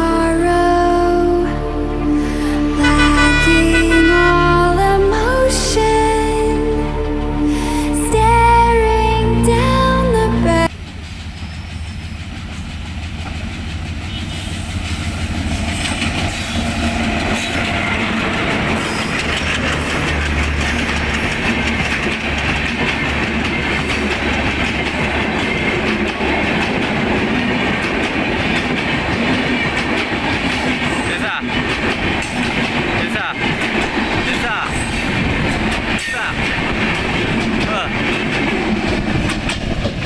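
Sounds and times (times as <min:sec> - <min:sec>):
train rushing on track: 0:00.0 - 0:40.0
wheels clicking over rail joints: 0:10.7 - 0:40.0.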